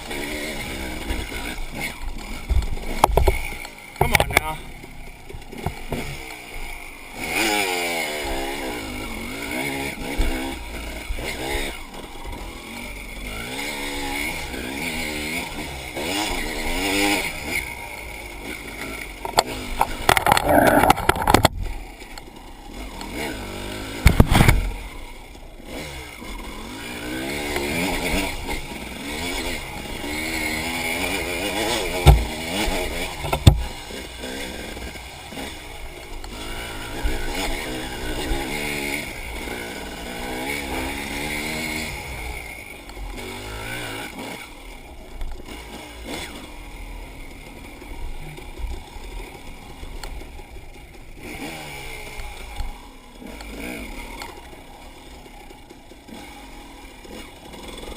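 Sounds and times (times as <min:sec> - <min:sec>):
dirt bike engine revving: 0:00.0 - 0:57.9
loud thumps and clatter: 0:02.5 - 0:03.4, 0:19.3 - 0:21.7, 0:24.0 - 0:24.7, 0:32.0 - 0:32.6, 0:33.2 - 0:33.8.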